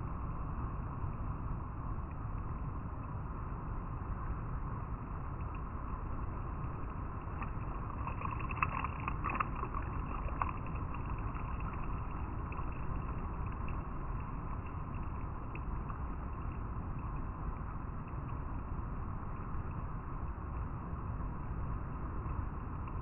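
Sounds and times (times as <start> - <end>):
river flowing over rocks: 6.0 - 17.4
water splashes: 6.5 - 16.6.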